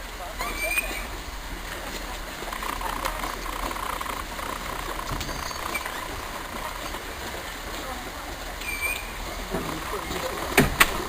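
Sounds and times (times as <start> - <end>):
indistinct voices: 0.2 - 11.0
engine running: 2.1 - 8.3.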